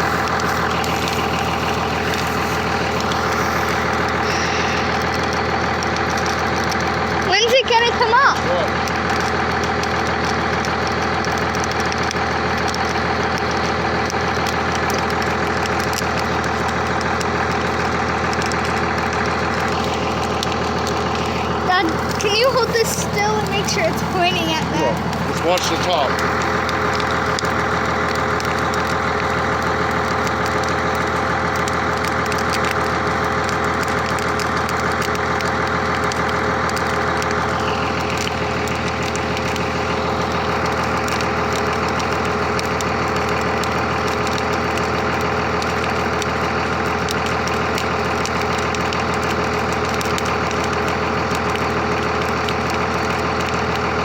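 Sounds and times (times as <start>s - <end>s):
steady low hum: 0.0s - 6.0s
bonfire crackling: 0.0s - 54.0s.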